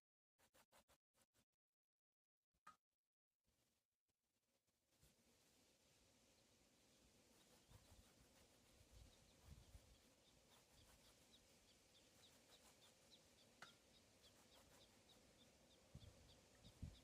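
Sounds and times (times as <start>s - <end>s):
bird chirping: 6.4s - 17.0s
wind rumble on microphone: 8.9s - 10.0s, 15.9s - 17.0s.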